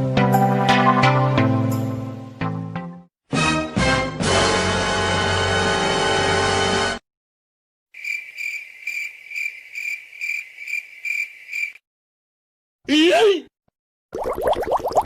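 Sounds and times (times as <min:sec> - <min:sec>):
music: 0:00.0 - 0:07.0
cricket chirping: 0:08.0 - 0:11.8.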